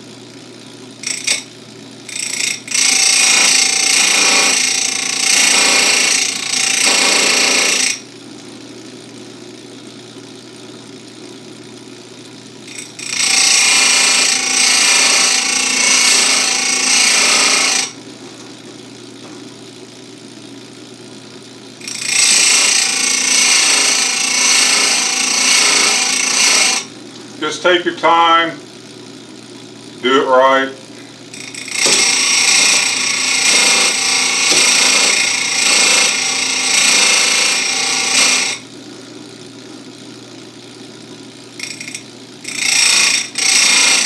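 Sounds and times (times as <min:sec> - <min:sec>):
grinder motor humming: 0:00.0 - 0:44.0
grinder wheel grinding chain: 0:01.0 - 0:08.1, 0:12.6 - 0:18.0, 0:21.8 - 0:27.5, 0:31.3 - 0:38.7, 0:41.5 - 0:44.0.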